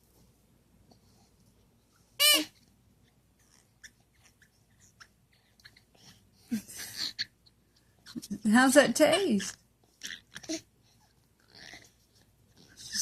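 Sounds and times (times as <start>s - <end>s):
rubber toy squeak: 2.2s - 2.6s
breathy baby vocalization: 11.4s - 13.0s.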